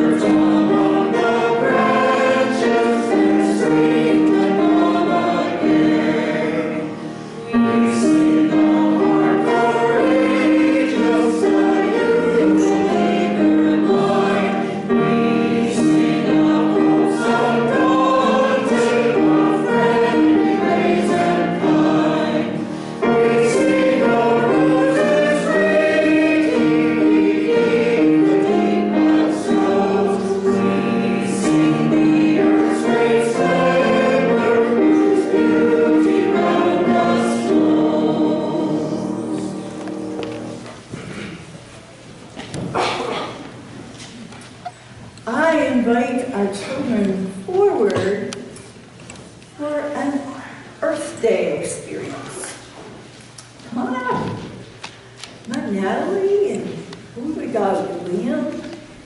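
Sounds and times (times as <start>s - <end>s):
choir singing: 0.0s - 40.9s.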